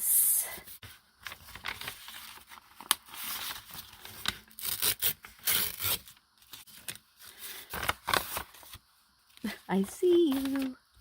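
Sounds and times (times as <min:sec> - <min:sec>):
paper tearing and rustling: 0:01.2 - 0:08.8.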